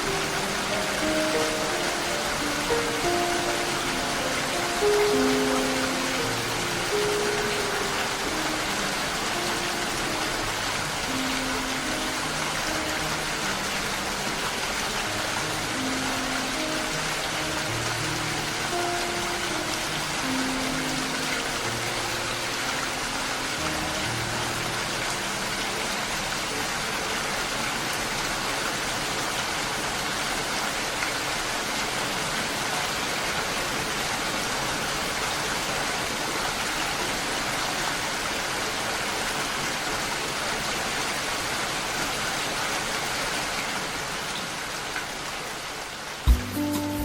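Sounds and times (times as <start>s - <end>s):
rain falling: 0.0s - 47.0s
faint low music notes: 46.3s - 47.0s.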